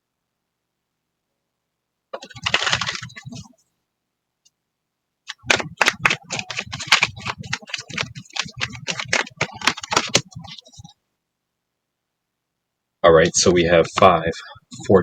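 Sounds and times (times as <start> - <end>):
cards being shuffled by hand: 2.2 - 3.5, 5.3 - 10.9.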